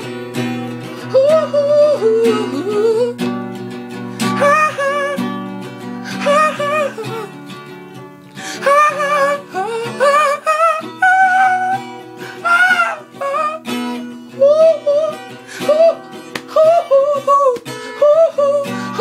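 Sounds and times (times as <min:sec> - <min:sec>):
acoustic guitar strumming: 0:00.0 - 0:19.0
person singing wordless vowels: 0:01.0 - 0:03.2, 0:04.2 - 0:05.2, 0:06.0 - 0:07.4, 0:08.5 - 0:19.0.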